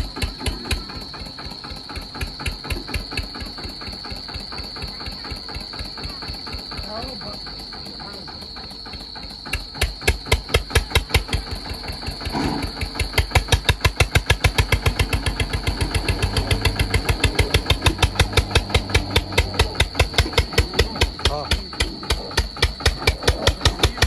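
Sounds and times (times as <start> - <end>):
tractor diesel engine chugging: 0.0 - 24.0
high-pitched whine: 15.0 - 22.4.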